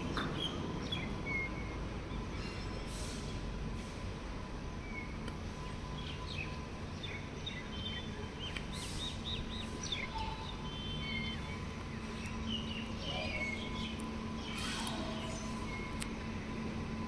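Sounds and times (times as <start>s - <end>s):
small birds chirping: 4.9s - 16.1s.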